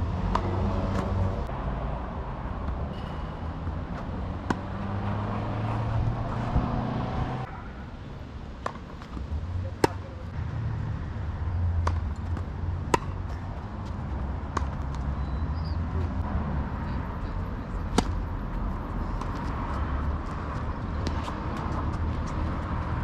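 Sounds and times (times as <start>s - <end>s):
tennis ball bouncing: 0.2s - 1.2s, 3.9s - 6.0s, 8.6s - 10.2s, 11.8s - 15.1s, 17.9s - 18.2s
tennis ball struck by racket: 4.0s - 6.7s, 8.6s - 9.2s, 9.8s - 10.1s, 11.8s - 13.3s, 14.5s - 14.9s, 17.9s - 18.2s.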